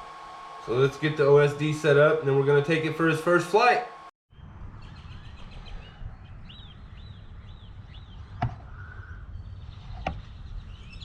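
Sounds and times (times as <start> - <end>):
birds chirping: 0.6 - 11.0
wind rumble on microphone: 4.3 - 11.0.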